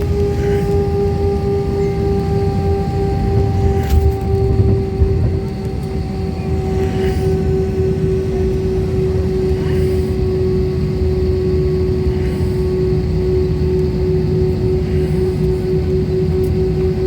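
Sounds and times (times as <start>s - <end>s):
jet engines humming: 0.0s - 17.0s.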